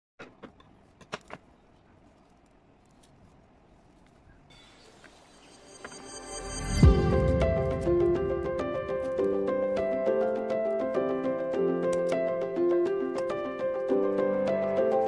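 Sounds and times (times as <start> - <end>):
background music: 5.3 - 15.0.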